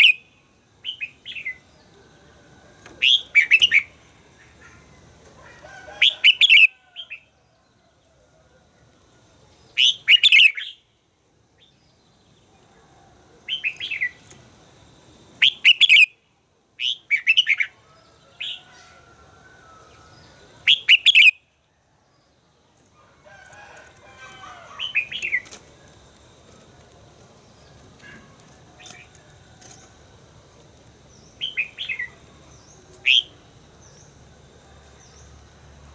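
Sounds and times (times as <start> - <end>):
soft bird chatter: 22.0 - 35.6.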